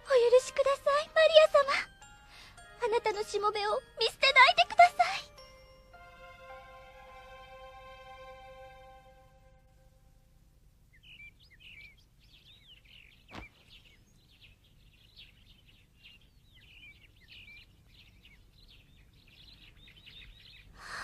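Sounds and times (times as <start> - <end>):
small birds chirping: 0.0 - 5.8, 10.9 - 21.0.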